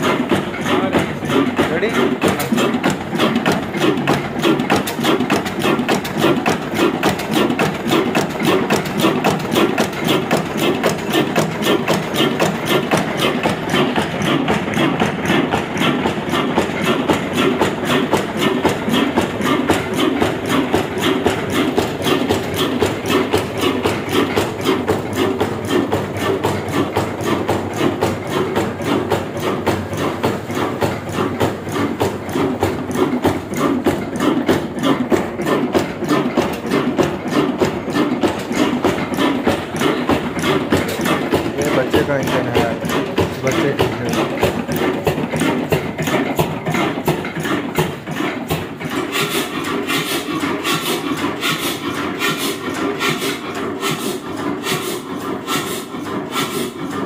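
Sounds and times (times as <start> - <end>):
diesel engine knocking steadily: 0.0 - 57.0.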